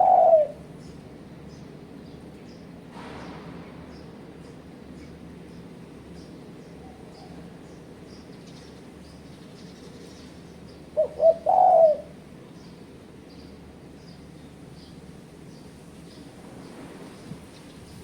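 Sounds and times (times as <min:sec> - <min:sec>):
dove cooing: 0:00.0 - 0:00.8, 0:10.9 - 0:12.3
small birds chirping: 0:00.0 - 0:18.0.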